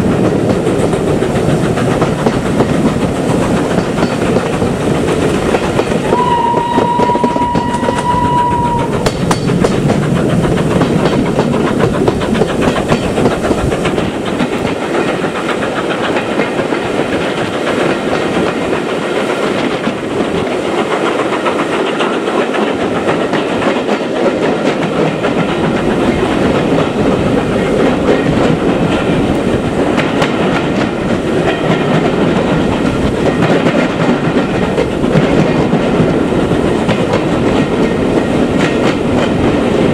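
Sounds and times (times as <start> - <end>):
locomotive and wheels rumbling: 0.0 - 39.9
steam train whistle: 6.1 - 9.3.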